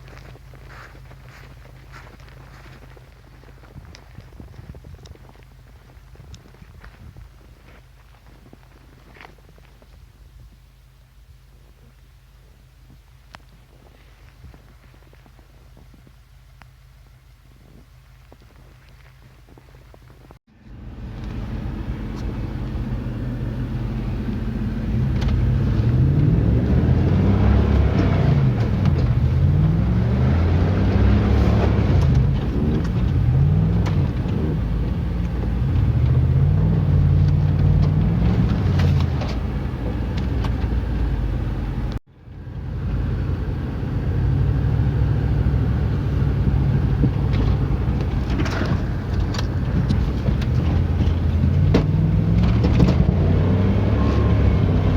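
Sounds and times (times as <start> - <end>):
car engine revving while driving: 20.8 - 54.9.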